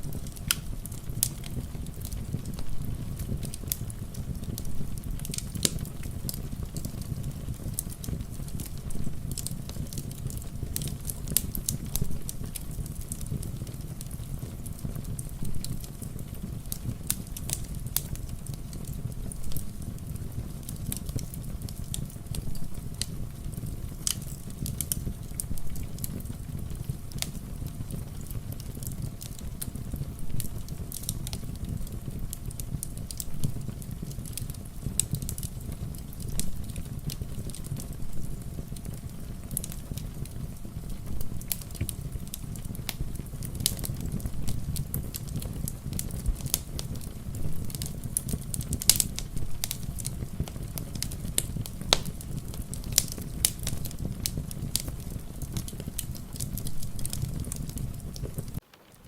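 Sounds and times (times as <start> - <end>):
wood fire crackling and popping: 0.0 - 59.0
rain falling: 36.2 - 59.0.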